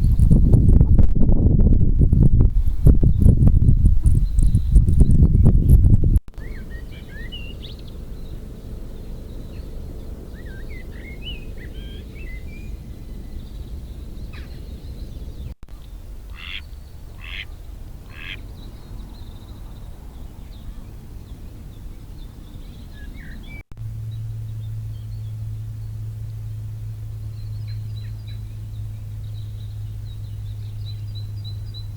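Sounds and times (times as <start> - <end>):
low rumble: 0.0 - 31.9
small birds chirping: 2.0 - 31.9
duck quacking: 16.4 - 16.6, 17.2 - 17.5, 18.1 - 18.4.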